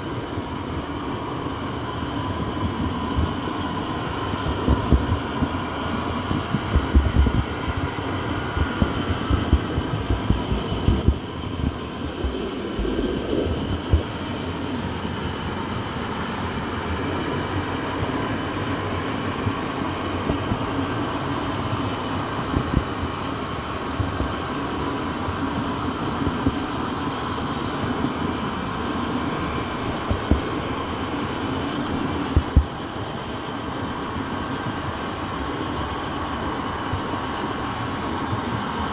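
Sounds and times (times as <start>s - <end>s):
train rumbling on rails: 2.2s - 25.0s
knocks and thumps: 8.6s - 12.4s.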